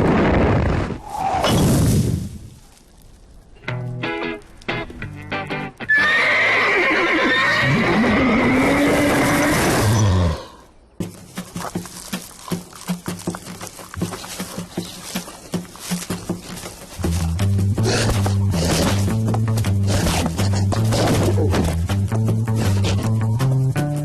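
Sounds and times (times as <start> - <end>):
animal-like cry with sliding pitch: 5.9 - 10.6.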